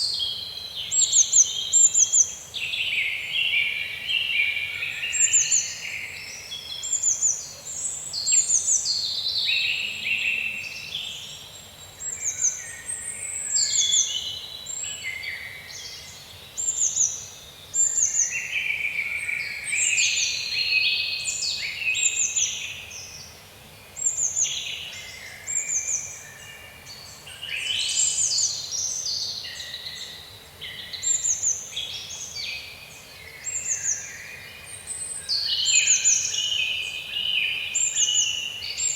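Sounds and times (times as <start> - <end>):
birds singing and calling: 23.9 - 38.9.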